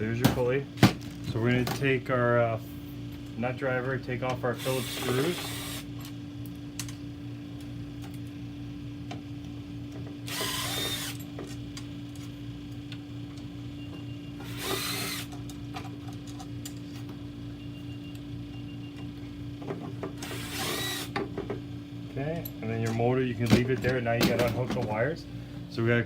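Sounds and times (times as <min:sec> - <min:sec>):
low electrical hum: 0:00.0 - 0:26.0
power driver spinning screws: 0:04.6 - 0:05.9, 0:10.3 - 0:11.2, 0:14.4 - 0:15.3, 0:20.2 - 0:21.2.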